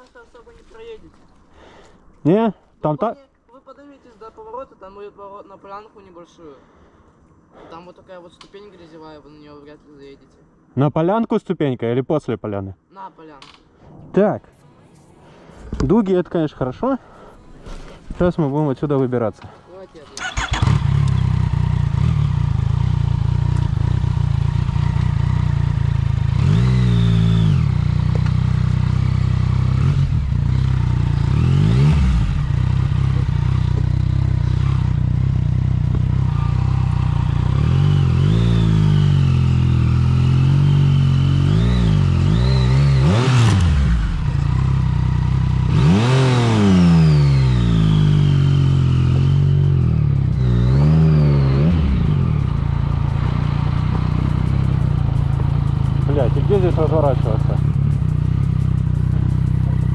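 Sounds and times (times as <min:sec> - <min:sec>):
motorcycle engine revving: 0:20.1 - 0:59.9.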